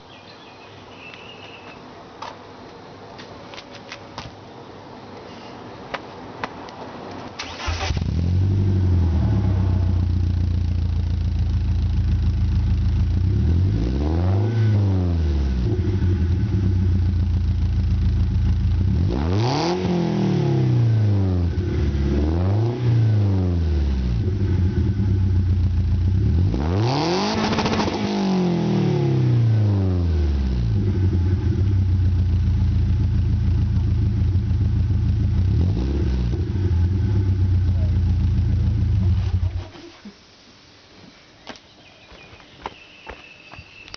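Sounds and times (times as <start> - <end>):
car engine idling and revving: 7.4 - 39.7.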